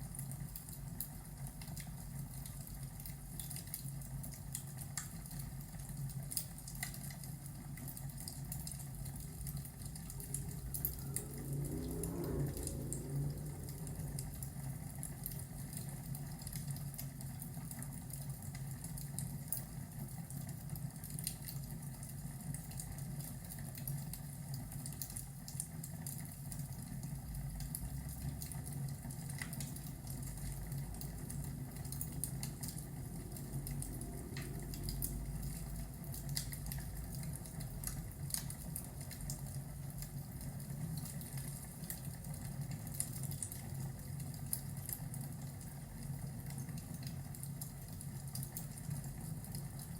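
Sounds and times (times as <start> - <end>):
rain-like hiss: 0.0 - 49.9
log fire crackling: 0.1 - 49.9
low hum: 8.8 - 16.5, 29.6 - 38.0
low thunder rumble: 8.9 - 16.3, 29.7 - 38.1.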